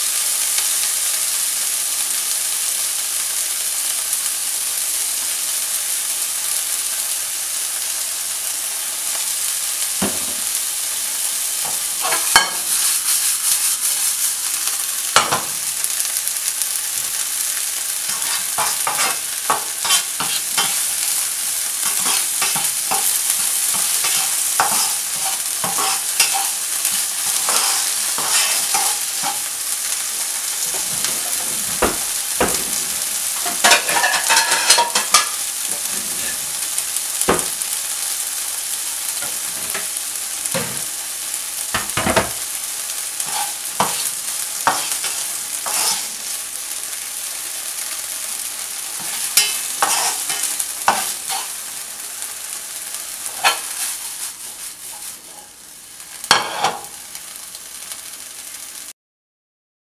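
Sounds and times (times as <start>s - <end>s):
food sizzling in a frying pan: 0.0s - 59.0s
utensil scraping a pan: 18.1s - 21.2s, 21.8s - 29.5s, 30.6s - 36.6s, 43.2s - 46.3s, 49.0s - 51.6s, 53.2s - 55.5s, 56.3s - 56.9s.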